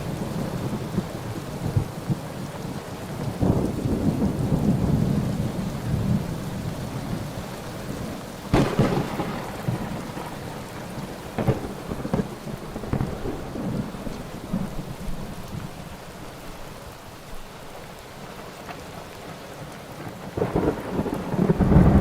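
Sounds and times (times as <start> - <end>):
low rolling thunder: 0.0 - 15.7, 20.0 - 22.0
rain: 0.0 - 22.0
sharp thunderclap: 8.5 - 10.6, 11.3 - 13.8, 20.4 - 22.0.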